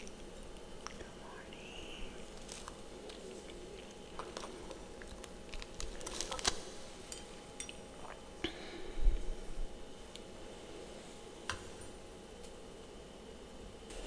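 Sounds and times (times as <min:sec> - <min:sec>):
freezer frost crunching: 0:00.0 - 0:08.2.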